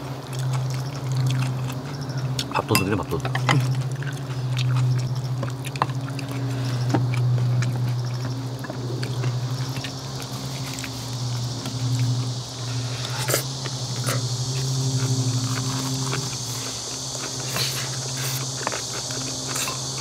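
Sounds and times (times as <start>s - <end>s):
chewing: 0.0s - 20.0s
high insect buzz: 0.0s - 20.0s.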